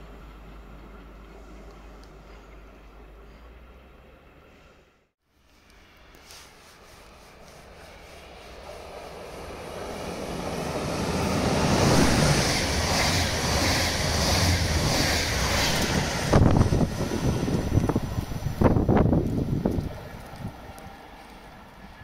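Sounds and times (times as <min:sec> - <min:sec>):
passenger train passing at speed: 0:00.0 - 0:04.8, 0:05.4 - 0:22.0
wind buffeting microphone: 0:10.0 - 0:21.0.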